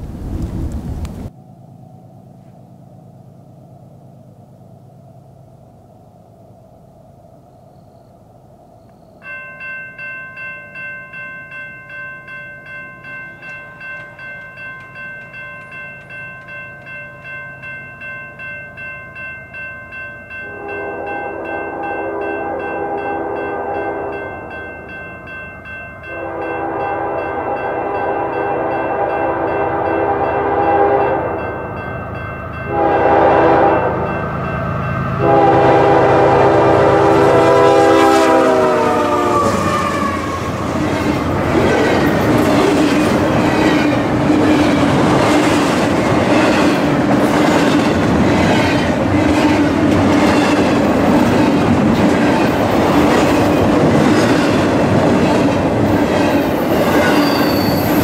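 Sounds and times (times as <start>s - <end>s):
train horn blasts: 20.4s - 24.6s, 26.0s - 31.6s, 32.6s - 34.3s, 35.1s - 40.6s
train cars rumbling and clattering: 20.4s - 58.0s.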